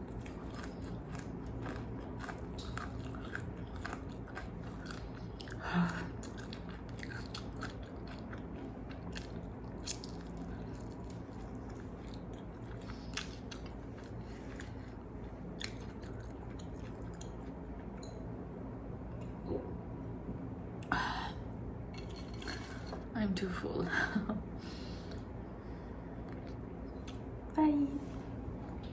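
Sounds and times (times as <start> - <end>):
chewing crispy chicken: 0.0 - 18.0.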